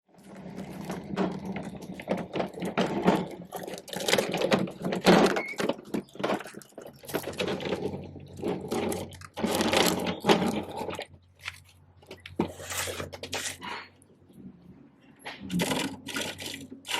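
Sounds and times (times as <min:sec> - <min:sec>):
plastic toy parts clattering: 0:00.7 - 0:13.7, 0:15.4 - 0:16.9.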